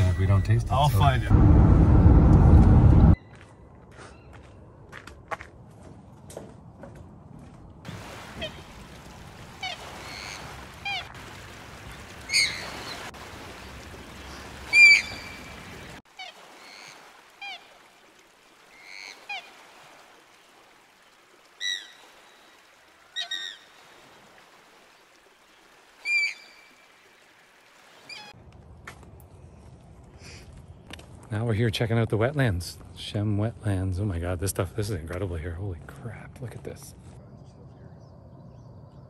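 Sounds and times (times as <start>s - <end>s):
low rumble: 0.0s - 3.2s.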